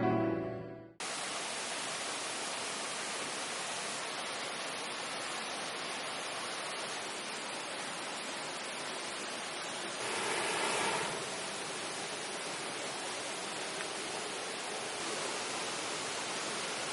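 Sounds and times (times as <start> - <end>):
background music: 0.0 - 1.0
rush of water: 1.0 - 16.9.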